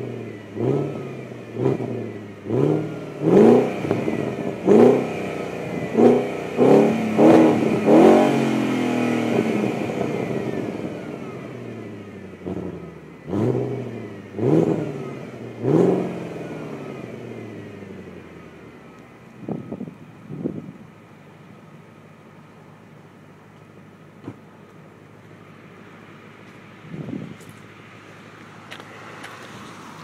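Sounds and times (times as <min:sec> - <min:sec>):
car engine revving in blips: 0:00.0 - 0:20.8.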